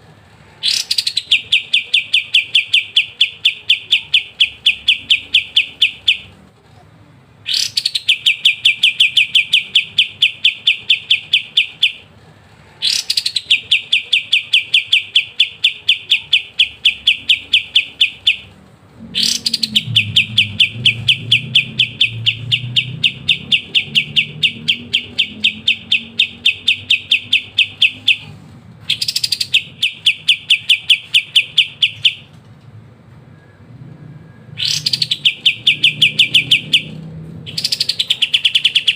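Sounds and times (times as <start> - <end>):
songbird singing rapid trills: 7.5 - 12.0, 19.2 - 28.3, 28.9 - 32.3, 34.6 - 38.9.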